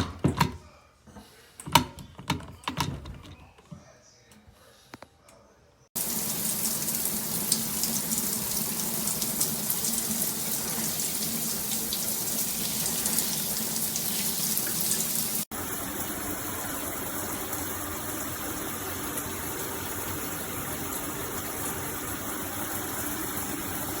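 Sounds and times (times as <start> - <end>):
shower water spraying and splashing: 6.0 - 24.0.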